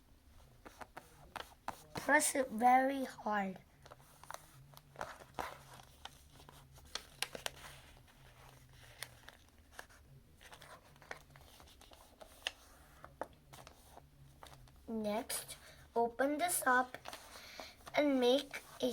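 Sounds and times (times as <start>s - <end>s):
paper crinkling: 3.7s - 15.7s, 16.4s - 18.9s.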